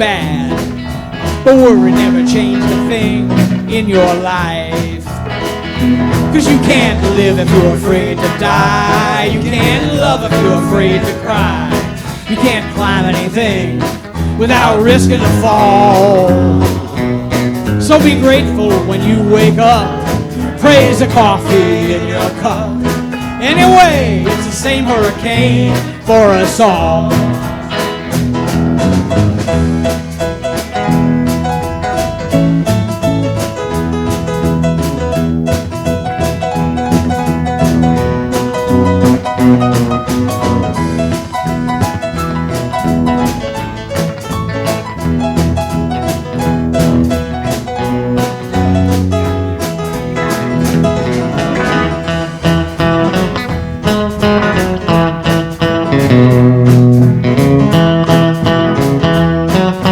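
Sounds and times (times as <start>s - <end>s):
band playing country music: 0.0s - 59.9s.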